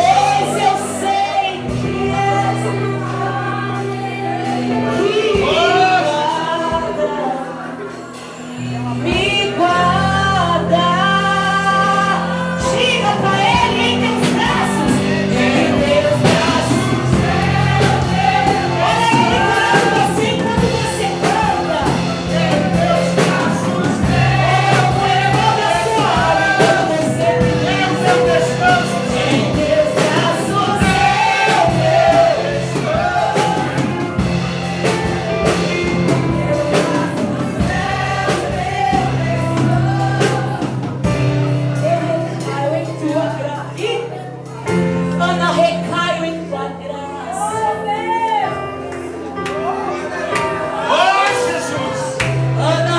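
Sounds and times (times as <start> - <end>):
gospel song with band: 0.0 - 52.9
sustained bass: 8.4 - 47.4.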